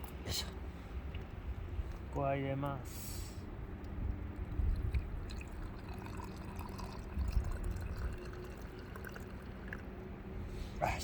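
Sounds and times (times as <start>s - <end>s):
water pouring into a cup: 4.7s - 9.9s.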